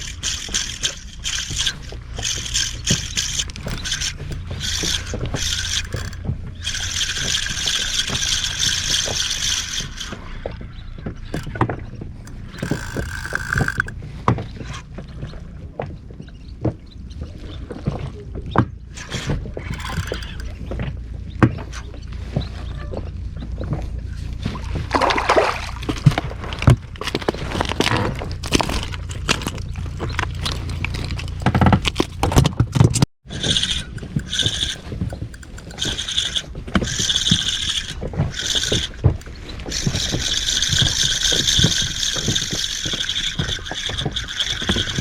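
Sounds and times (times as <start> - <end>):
sharp clicks and knocks: 0.0 - 10.2, 11.0 - 14.0, 19.1 - 20.9, 25.8 - 45.0
water lapping against boat: 0.0 - 45.0.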